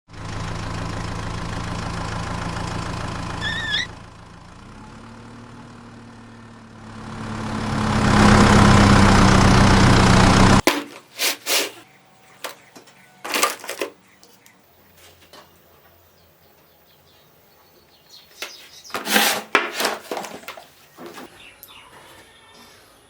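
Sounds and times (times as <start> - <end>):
wavering squeak: 3.4 - 4.0.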